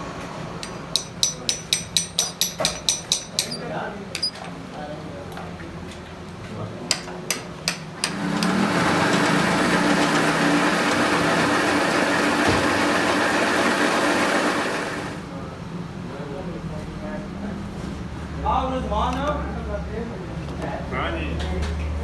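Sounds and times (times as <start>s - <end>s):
sharp metal knocks: 0.6s - 4.5s, 6.9s - 8.2s
workshop machine hissing and humming: 7.8s - 15.3s.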